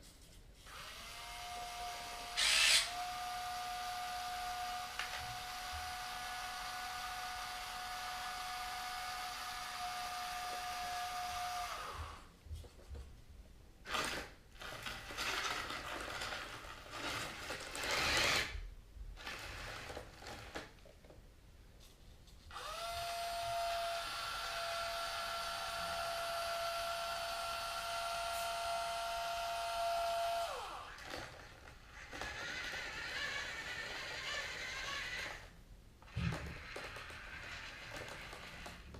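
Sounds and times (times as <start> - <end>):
small electric motors whining: 0.7 - 12.3, 17.0 - 18.6, 22.5 - 35.5, 36.1 - 38.9.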